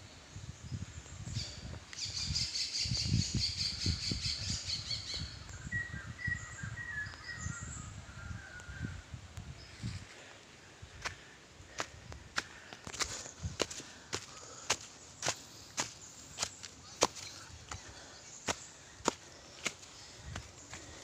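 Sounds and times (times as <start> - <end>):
forest birds calling: 0.0 - 21.0
footsteps on a trail: 10.9 - 21.0.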